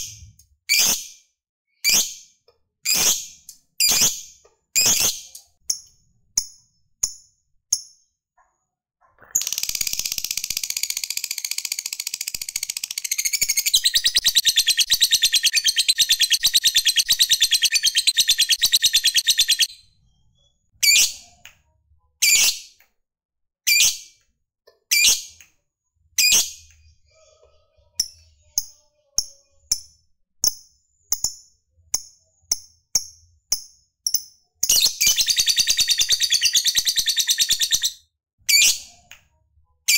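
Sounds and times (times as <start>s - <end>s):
lovebird chirping: 9.2s - 21.2s, 34.1s - 38.8s
lovebird fast trill: 9.4s - 19.7s.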